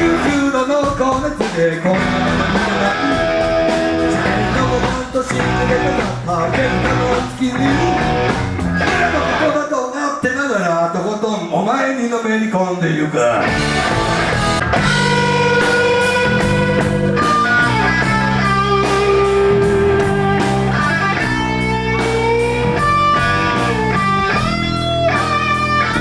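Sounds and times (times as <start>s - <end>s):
bass guitar: 0.0s - 0.5s, 1.9s - 9.5s, 13.4s - 26.0s
drum kit steady beat: 0.0s - 9.5s, 13.5s - 26.0s
electric guitar lead notes: 2.0s - 9.4s, 13.4s - 26.0s.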